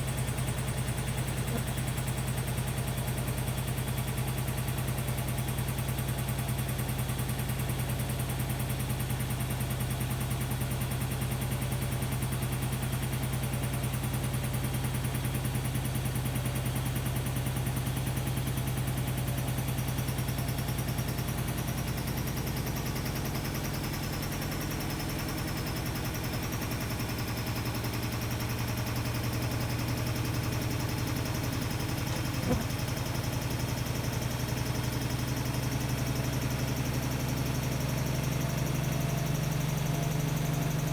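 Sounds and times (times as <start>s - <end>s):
washer-dryer humming: 31.5s - 32.9s.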